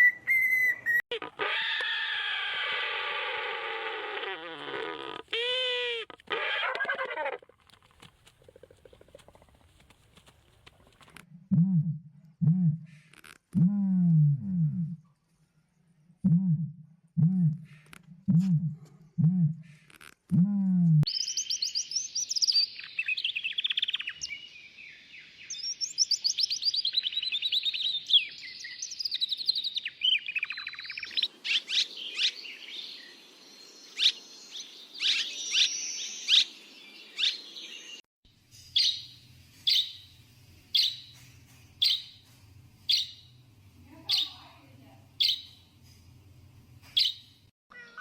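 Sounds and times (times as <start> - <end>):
bird warbling song: 21.1 - 42.2, 42.9 - 43.4, 44.0 - 44.6, 45.2 - 45.6, 46.9 - 47.4
sharp bird calls: 33.9 - 38.0, 38.7 - 40.1, 40.7 - 41.2, 44.1 - 44.5, 45.2 - 45.6.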